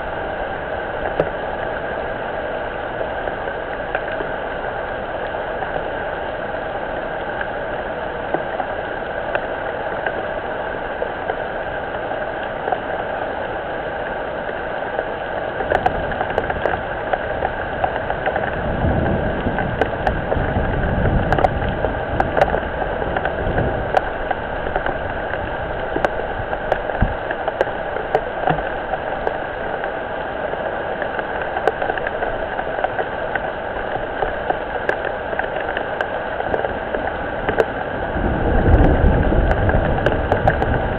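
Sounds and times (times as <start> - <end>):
rain falling on pond: 0.0 - 40.9
water drip clicks: 15.0 - 37.8, 38.7 - 40.8.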